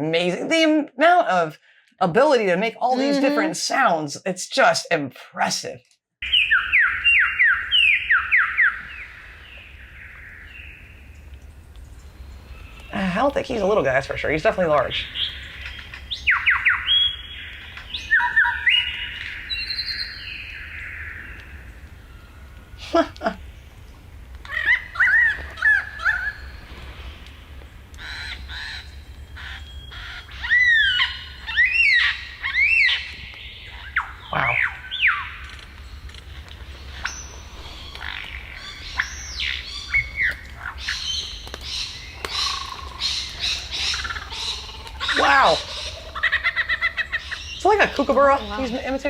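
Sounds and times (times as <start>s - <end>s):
lyrebird singing: 6.2s - 10.8s, 12.3s - 21.8s, 24.5s - 27.4s, 28.0s - 49.0s
lyrebird mimicking calls: 28.0s - 33.0s, 41.8s - 48.8s.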